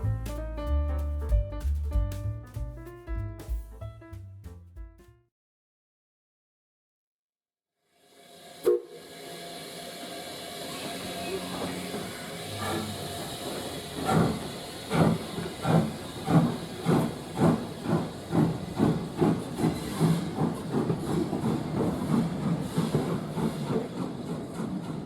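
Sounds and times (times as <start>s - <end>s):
steam hissing: 8.1s - 25.0s
steam locomotive chuffing: 8.4s - 25.0s.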